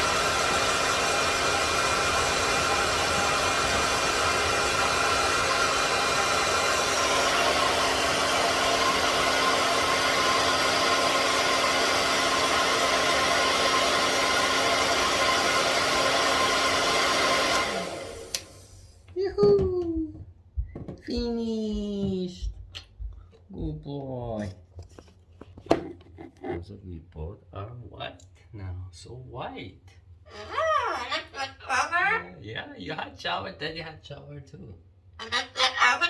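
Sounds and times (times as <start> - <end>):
motor spinning down: 0.0 - 18.8
hair dryer blowing: 0.0 - 19.1.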